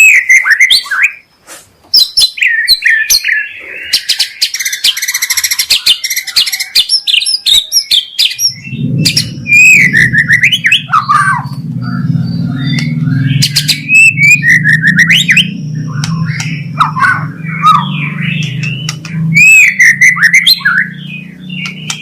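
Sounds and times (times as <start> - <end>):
bird singing whistled song: 0.0 - 1.2, 1.9 - 22.0
low hum: 8.6 - 22.0.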